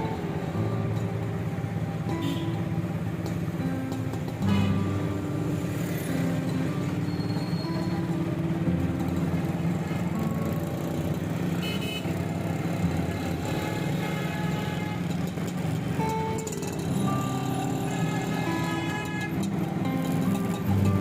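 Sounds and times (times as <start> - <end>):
vehicle engines running: 0.0 - 21.0
car horn toots: 2.1 - 2.6, 4.5 - 4.8, 11.6 - 12.3, 13.4 - 15.2, 17.5 - 19.6.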